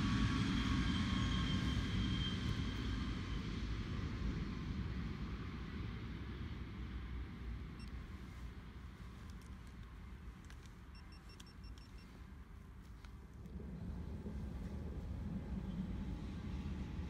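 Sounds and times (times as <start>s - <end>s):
electric train rumbling: 0.0s - 7.1s, 11.7s - 17.0s.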